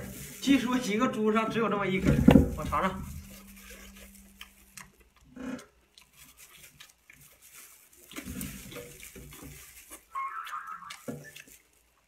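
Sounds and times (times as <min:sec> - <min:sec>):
person chewing wetly: 0:03.2 - 0:12.0.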